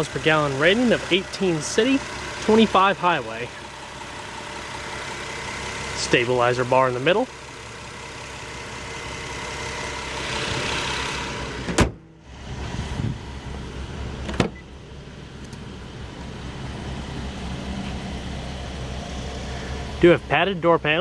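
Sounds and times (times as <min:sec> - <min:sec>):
car engine idling: 0:00.0 - 0:21.0
car door opening: 0:11.4 - 0:13.2, 0:14.2 - 0:14.8
car hood shutting: 0:11.4 - 0:13.2, 0:14.2 - 0:14.8.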